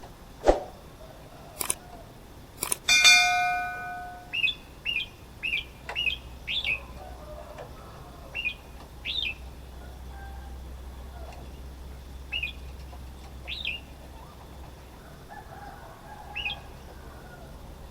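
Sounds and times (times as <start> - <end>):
bird calling: 3.0 - 11.6, 12.2 - 17.8.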